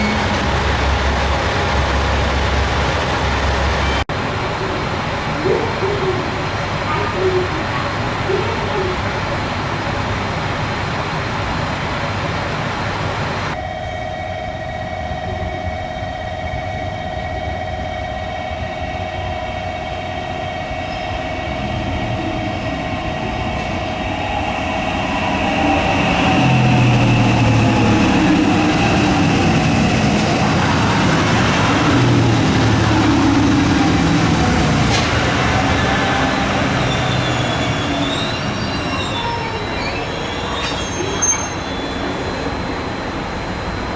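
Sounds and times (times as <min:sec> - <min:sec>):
wheel squeal: 0:00.0 - 0:04.0, 0:20.6 - 0:43.9
train rolling rumble: 0:00.0 - 0:43.9
train whine: 0:00.0 - 0:43.9.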